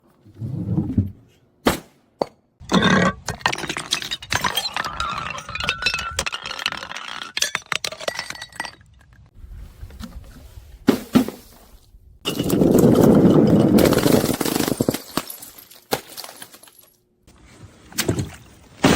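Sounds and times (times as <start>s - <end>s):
glass bottles breaking: 2.7s - 9.2s, 12.3s - 16.9s
glass shards crunching and clinking: 3.4s - 9.1s, 12.3s - 17.0s.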